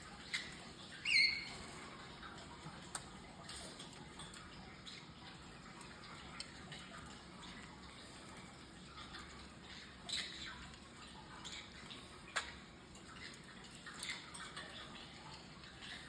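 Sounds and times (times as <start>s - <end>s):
light clicks and ticks: 0.0s - 16.0s
parrot chirp: 0.2s - 1.8s, 9.6s - 10.8s.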